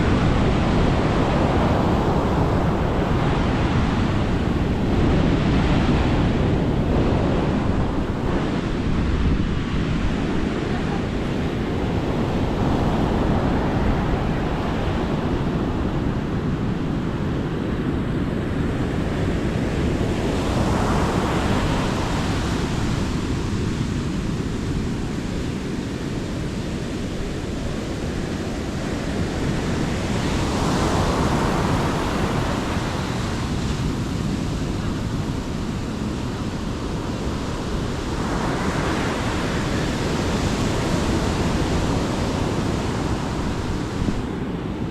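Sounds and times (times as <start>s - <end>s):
sea waves breaking on a beach: 0.0s - 44.9s
wind rumbling on microphone: 0.0s - 44.9s.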